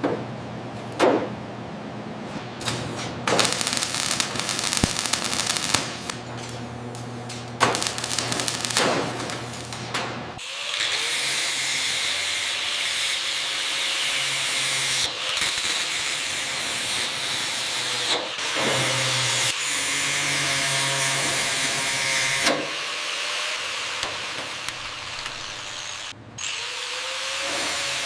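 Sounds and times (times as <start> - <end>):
machine hissing: 2.6 - 6.2, 23.8 - 26.2.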